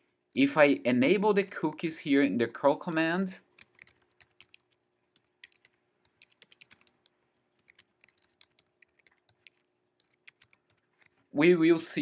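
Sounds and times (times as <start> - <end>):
typing on computer keyboard: 2.9 - 11.2.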